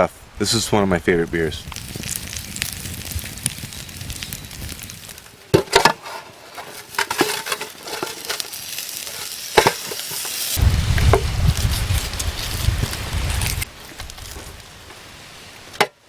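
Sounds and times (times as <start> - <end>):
chicken sizzling on a hot rock: 0.7 - 15.8
low rumble: 10.6 - 14.6.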